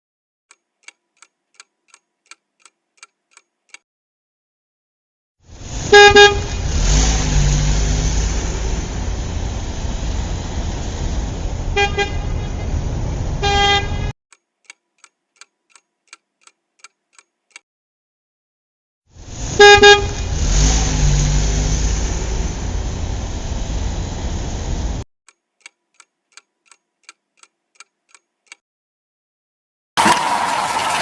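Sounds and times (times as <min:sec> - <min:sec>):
faint regular ticks: 0:00.5 - 0:03.8, 0:14.3 - 0:17.6, 0:25.3 - 0:28.6
vehicle engine running: 0:05.5 - 0:14.1, 0:19.2 - 0:25.0
vehicle horn honking: 0:05.8 - 0:06.8, 0:11.7 - 0:12.8, 0:13.4 - 0:14.1, 0:19.5 - 0:20.4.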